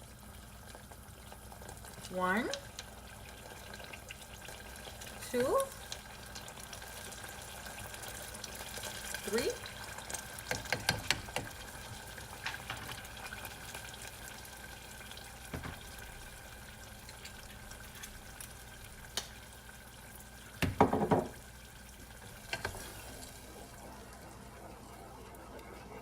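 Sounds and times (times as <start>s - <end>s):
sauce sizzling in a pan: 0.0s - 26.0s.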